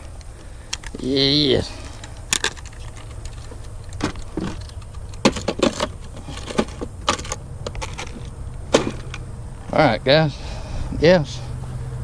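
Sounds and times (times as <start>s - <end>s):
handling clicks and rattles: 0.0s - 9.3s.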